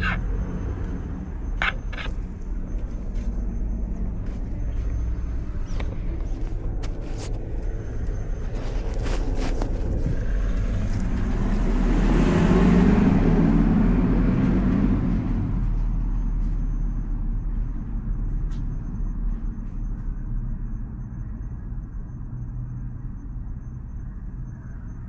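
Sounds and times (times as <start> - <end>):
car passing by: 10.5 - 15.8.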